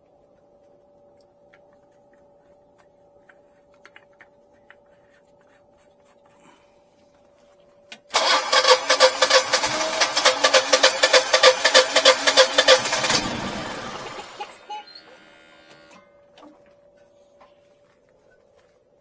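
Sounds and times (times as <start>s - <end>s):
faint steady hum: 0.0s - 8.1s, 13.4s - 19.0s
generator engine cranking: 8.0s - 16.7s.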